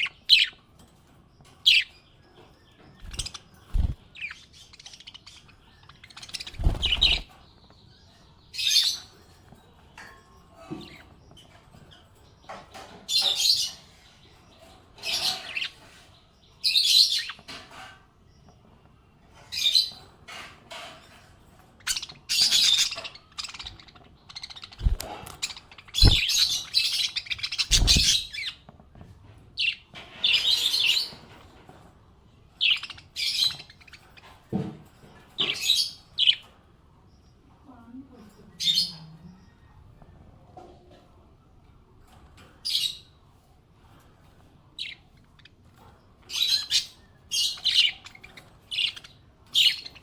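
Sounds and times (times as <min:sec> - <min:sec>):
budgerigars chirping and warbling: 0:00.0 - 0:18.7, 0:19.3 - 0:31.8, 0:32.5 - 0:36.6, 0:42.1 - 0:50.0.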